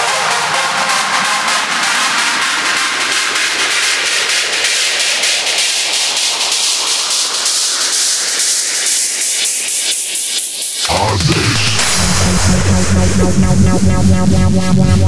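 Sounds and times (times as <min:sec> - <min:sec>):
faint electronic beat: 0:10.8 - 0:15.0.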